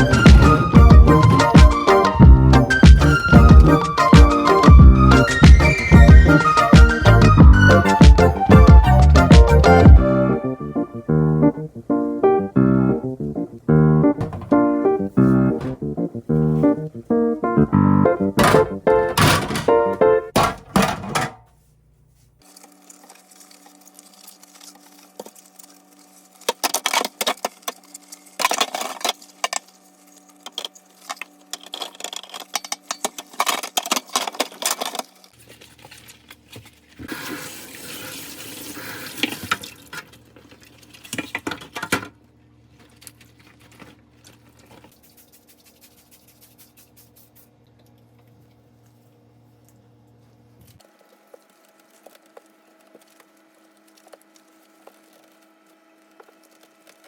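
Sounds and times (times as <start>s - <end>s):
tap running: 14.0s - 16.0s
plastic parts clattering: 14.2s - 15.9s, 18.2s - 21.5s, 26.4s - 29.8s, 30.5s - 37.3s, 39.0s - 44.9s.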